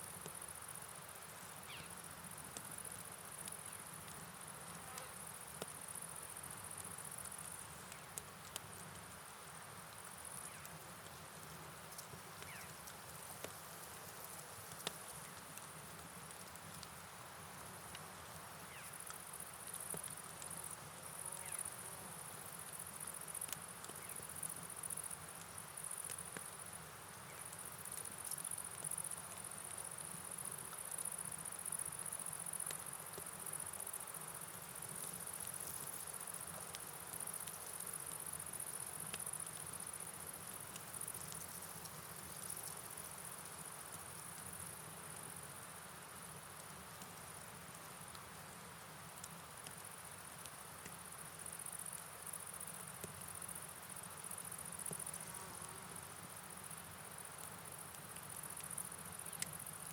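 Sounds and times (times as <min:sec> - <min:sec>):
night insects chorus: 0:00.0 - 0:08.1, 0:09.2 - 0:15.8, 0:18.6 - 0:47.5.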